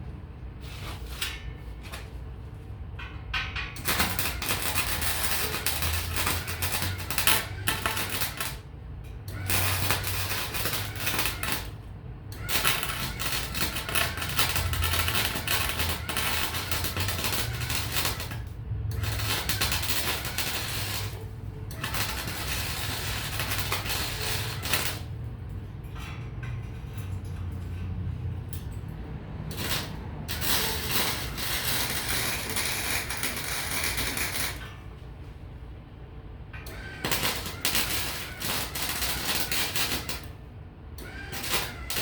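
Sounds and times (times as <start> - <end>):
low electrical hum: 0.0 - 42.0
welding arc crackling: 3.8 - 25.2, 29.5 - 34.7, 36.7 - 42.0.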